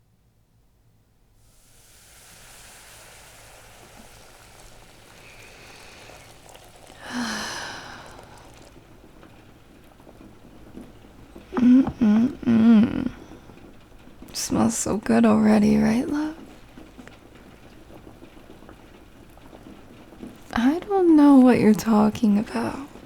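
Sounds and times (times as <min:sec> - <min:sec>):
brown noise: 0:01.4 - 0:13.6
steady rain: 0:01.4 - 0:23.0
breathy sound: 0:05.1 - 0:08.8.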